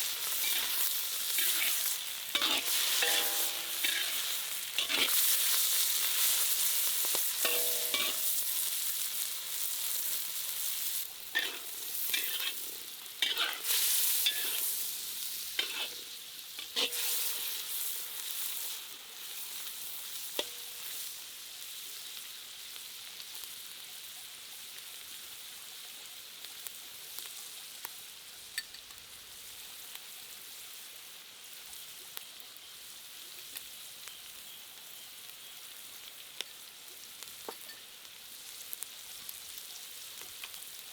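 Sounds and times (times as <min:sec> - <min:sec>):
food sizzling in a pan: 0:00.0 - 0:40.9
utensil scraping a pan: 0:00.2 - 0:05.5, 0:07.4 - 0:08.4, 0:11.3 - 0:14.9, 0:15.6 - 0:17.8.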